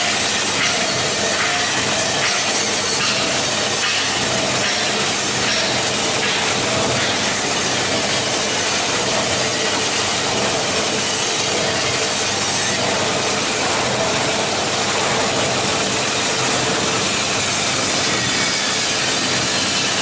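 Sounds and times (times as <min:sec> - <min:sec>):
recycling machinery running: 0:00.0 - 0:20.0.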